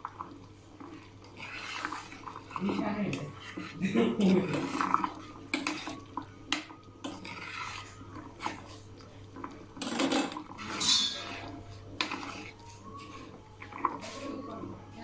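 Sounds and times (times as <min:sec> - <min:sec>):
spoon clinking and scraping pan: 0:04.5 - 0:06.0, 0:09.8 - 0:13.2
high squeak: 0:10.6 - 0:11.5.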